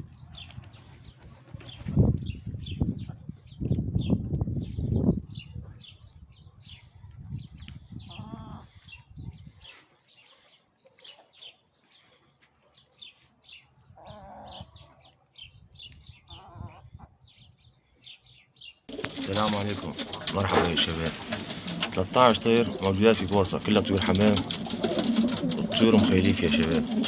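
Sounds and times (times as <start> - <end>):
small birds chirping: 0.0 - 27.0
low rumbling and rustling: 18.9 - 27.0
pigeons cooing: 18.9 - 27.0.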